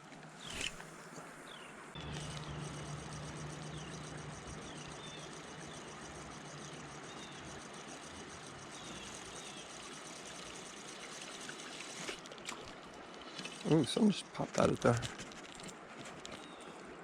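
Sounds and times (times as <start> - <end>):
creek water running: 0.2 - 17.0
faint high pulsing trill: 2.0 - 11.8.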